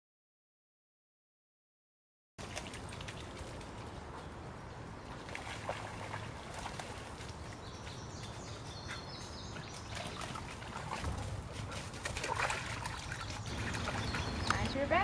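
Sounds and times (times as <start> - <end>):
outdoor background noise: 2.4 - 15.0
bird chirping: 7.2 - 10.6, 13.0 - 15.0.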